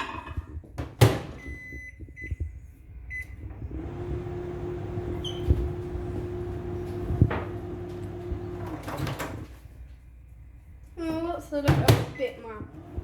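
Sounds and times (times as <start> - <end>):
microwave humming: 3.0 - 9.5, 12.6 - 13.0.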